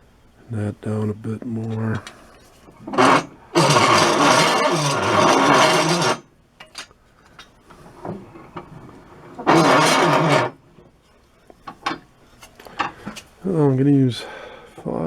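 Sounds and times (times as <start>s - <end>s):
tool scraping wood: 2.8s - 6.3s, 8.1s - 10.6s.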